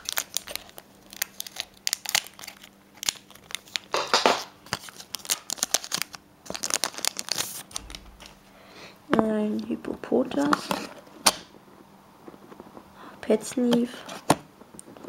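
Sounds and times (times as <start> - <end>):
foil wrapper crinkling: 0.0 - 8.4.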